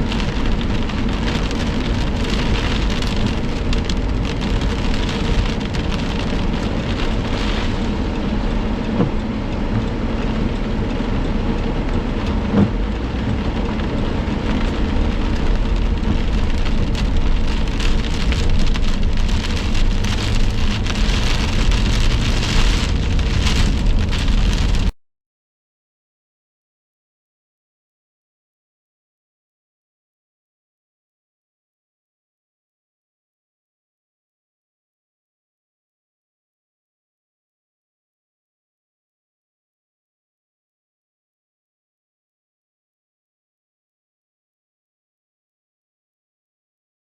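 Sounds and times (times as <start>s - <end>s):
low thunder rumble: 0.0s - 24.9s
heavy rain falling: 0.0s - 25.0s.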